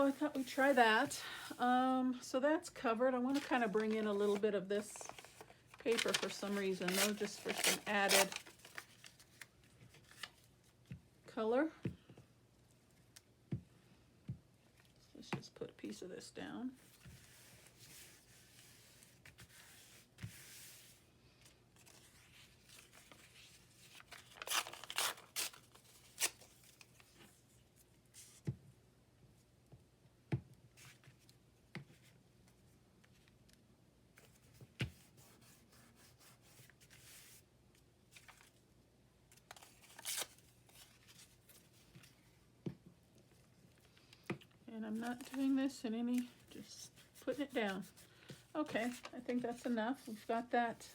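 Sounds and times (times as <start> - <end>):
paper tearing: 3.3 - 9.2, 24.0 - 26.5.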